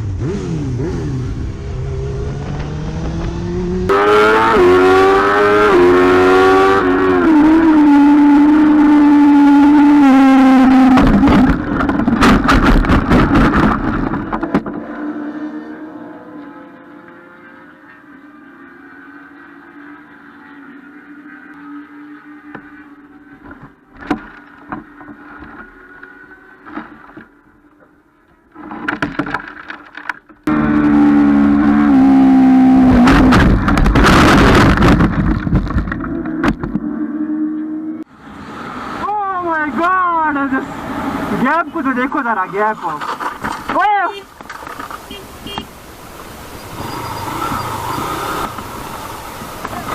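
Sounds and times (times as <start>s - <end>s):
vehicle engine droning: 0.0s - 28.7s, 30.4s - 42.3s, 44.6s - 49.9s
car horn: 45.0s - 45.8s.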